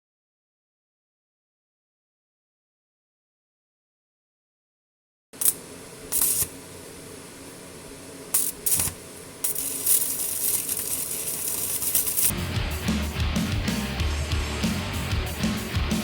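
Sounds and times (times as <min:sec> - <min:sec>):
welding arc crackling and hissing: 0:05.4 - 0:12.4.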